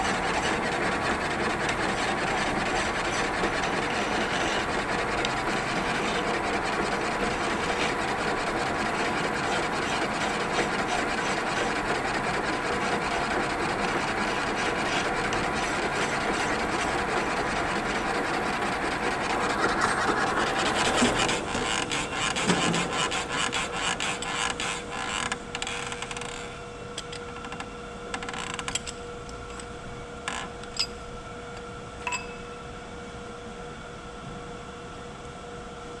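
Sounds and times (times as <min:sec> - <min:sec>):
lathe cutting scraping: 0:00.0 - 0:24.9
lathe humming: 0:00.0 - 0:24.9.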